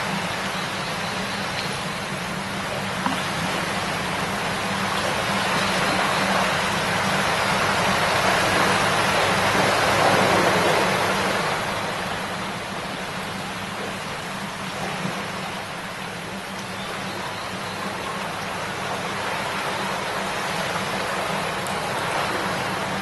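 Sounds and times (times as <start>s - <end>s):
river babbling over stones: 0.0s - 23.0s.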